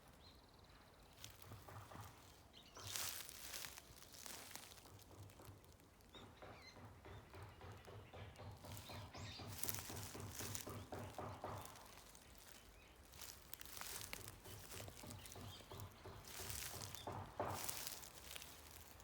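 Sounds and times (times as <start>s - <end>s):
soft rustling and crackling: 1.1s - 6.1s, 9.5s - 19.0s.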